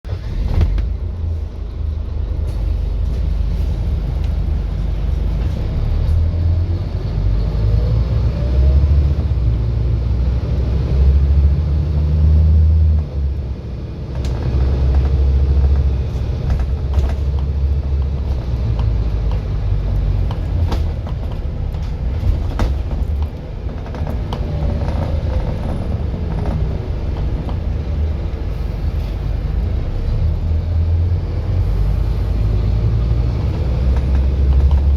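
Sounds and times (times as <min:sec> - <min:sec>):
bus diesel engine drone: 0:00.0 - 0:34.9
engine whine: 0:00.1 - 0:34.9
rattles and knocks: 0:14.1 - 0:27.8.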